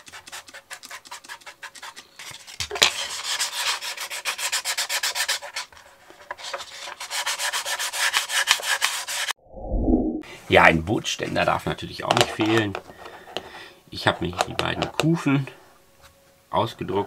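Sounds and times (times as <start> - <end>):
wet sandpaper sanding plastic: 0.0 - 9.3.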